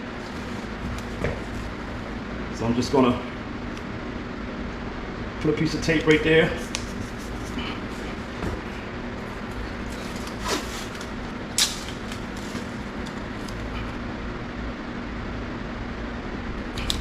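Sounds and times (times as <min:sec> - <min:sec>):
background hum: 0:00.0 - 0:17.0
tape crackling off roll: 0:06.6 - 0:13.8.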